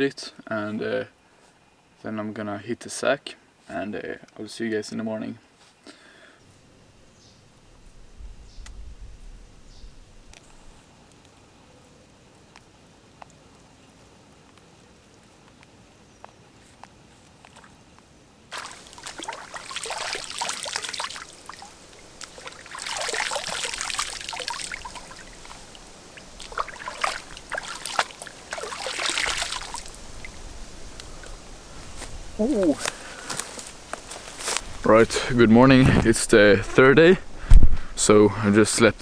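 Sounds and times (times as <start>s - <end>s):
faint ticks: 10.3s - 11.5s, 12.3s - 18.1s
water trickling and splashing: 18.5s - 39.0s.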